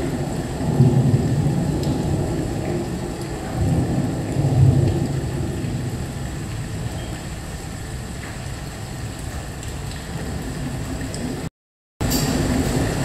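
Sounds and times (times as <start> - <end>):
low rumble of thunder: 0.0 - 11.5, 12.1 - 13.0.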